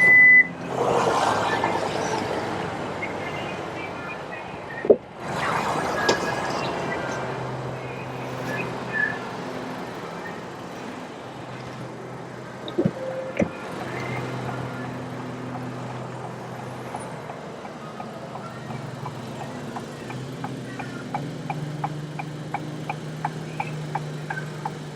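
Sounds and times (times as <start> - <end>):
vehicle hum: 0.0 - 24.9.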